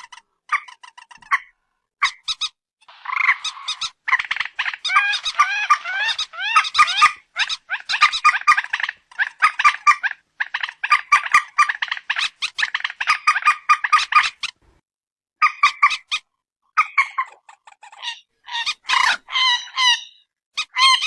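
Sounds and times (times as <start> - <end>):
moorhen calls: 2.1 - 14.6.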